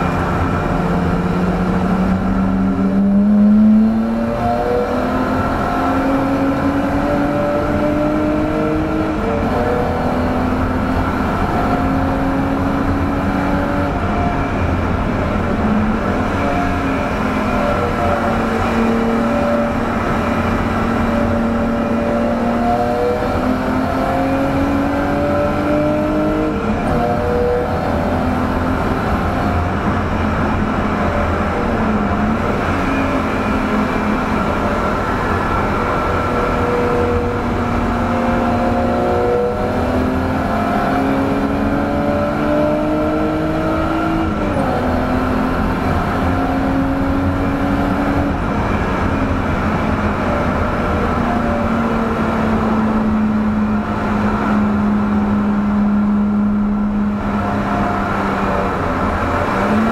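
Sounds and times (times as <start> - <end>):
car engine accelerating: 0.0 - 59.9
road and wind noise: 0.0 - 59.9.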